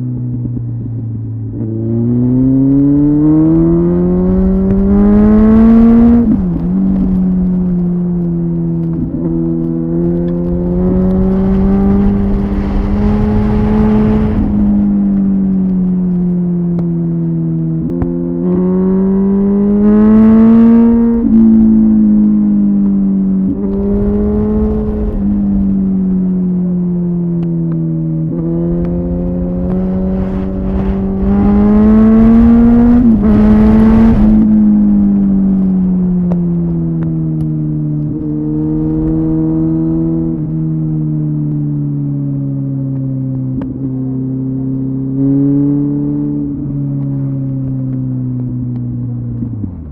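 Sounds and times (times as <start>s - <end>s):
motorcycle engine revving: 1.4s - 16.2s, 17.8s - 40.8s.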